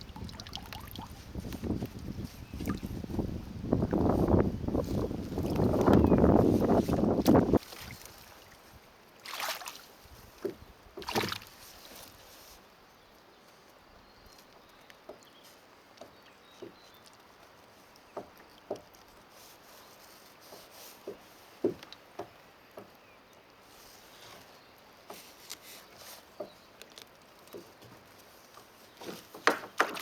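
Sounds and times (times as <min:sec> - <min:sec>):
water splashing around kayak: 0:00.0 - 0:12.7, 0:15.5 - 0:22.8, 0:23.6 - 0:30.0
soft knocks against hull: 0:10.4 - 0:11.5, 0:18.2 - 0:19.0, 0:20.5 - 0:23.0, 0:29.0 - 0:30.0.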